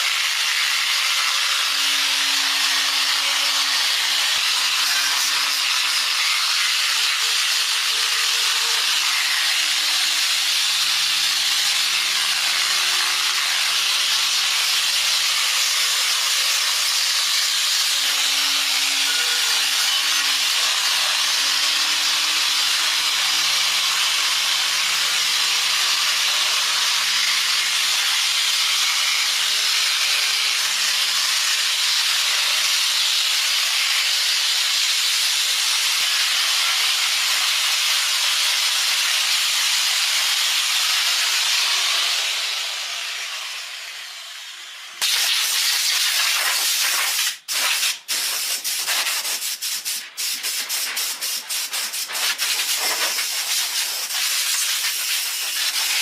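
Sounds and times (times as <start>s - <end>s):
workshop tool hissing: 40.4s - 56.0s.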